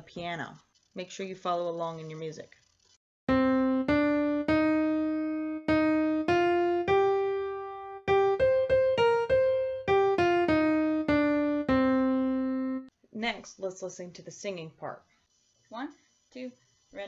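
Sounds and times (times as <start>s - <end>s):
piano melody: 3.3s - 12.9s.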